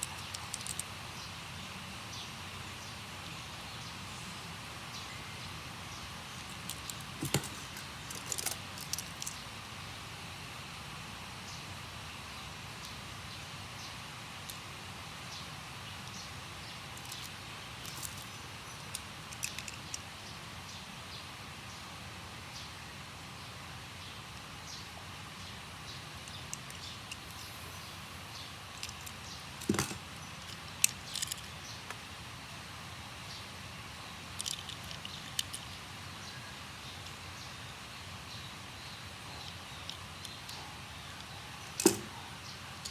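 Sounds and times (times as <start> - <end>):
small hard objects clicking: 0.0 - 0.9, 6.4 - 9.4, 17.0 - 20.1, 26.2 - 27.4, 28.7 - 32.0, 34.3 - 35.8, 41.2 - 42.2
steady background hiss: 0.0 - 42.9.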